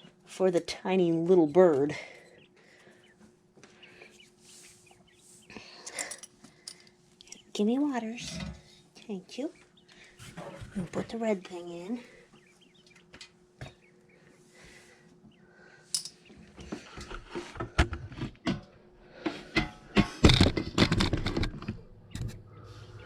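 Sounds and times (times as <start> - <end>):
clatter of knocks and rattles: 19.6 - 22.4.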